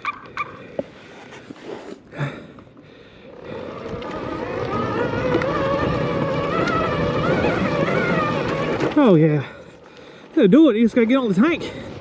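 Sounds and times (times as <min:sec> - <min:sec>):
tyres rumbling on dirt: 0:02.1 - 0:12.0
electric motor whining: 0:03.2 - 0:09.0.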